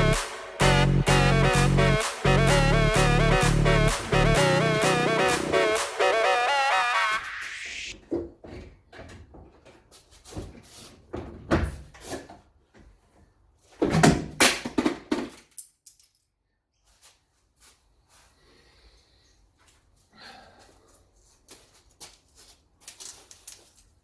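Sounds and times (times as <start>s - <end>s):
knocks and clatters of parts: 8.0s - 12.4s, 13.8s - 16.3s.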